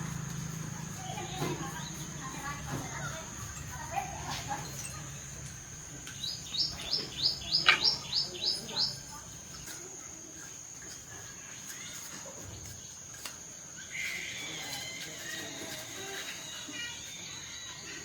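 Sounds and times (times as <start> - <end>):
bird singing downward notes: 6.1 - 9.1.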